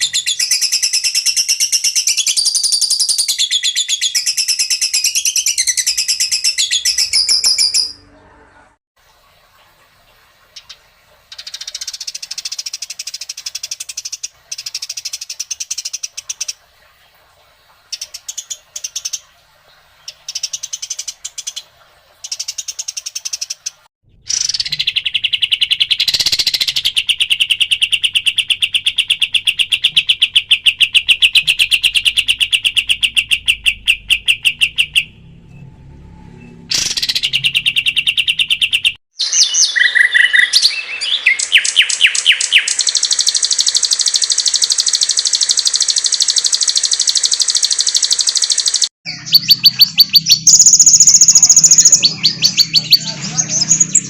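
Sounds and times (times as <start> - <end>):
songbird song: 0.0 - 8.8, 10.0 - 16.9, 17.7 - 54.0
bird rattling trill: 42.0 - 48.9.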